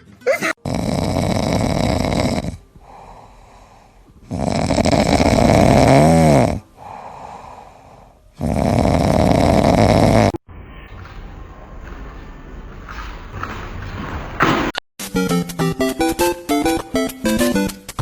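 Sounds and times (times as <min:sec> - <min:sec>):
pet snoring loudly: 0:00.6 - 0:10.4
quiet breaths: 0:00.8 - 0:05.8, 0:06.5 - 0:10.0.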